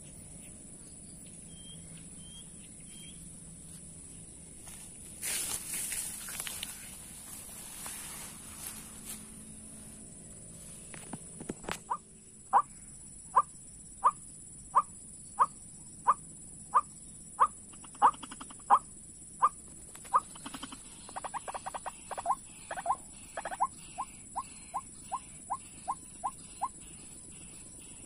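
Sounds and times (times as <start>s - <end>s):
waterhen calling: 19.4s - 26.8s.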